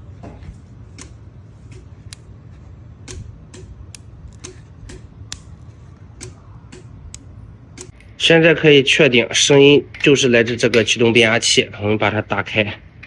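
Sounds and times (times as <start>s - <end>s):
low electrical hum: 0.0s - 13.0s
electrical crackling ticks: 0.9s - 1.2s, 2.0s - 2.3s, 3.0s - 8.0s.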